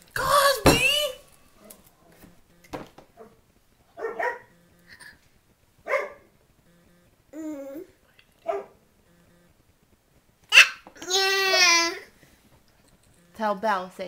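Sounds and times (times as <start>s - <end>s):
dog barking: 3.2s - 3.4s, 4.0s - 4.6s, 5.8s - 6.3s, 8.4s - 8.8s.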